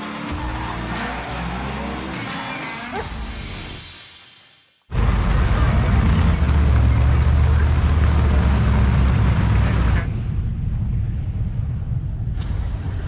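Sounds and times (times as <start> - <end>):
car engine running: 4.9 - 10.5
heavy rushing noise: 4.9 - 13.0.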